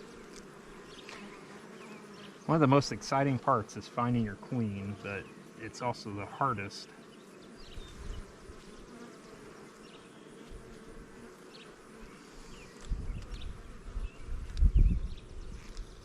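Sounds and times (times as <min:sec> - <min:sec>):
bees buzzing: 0:00.0 - 0:16.0
low rumbles on microphone: 0:12.9 - 0:15.6.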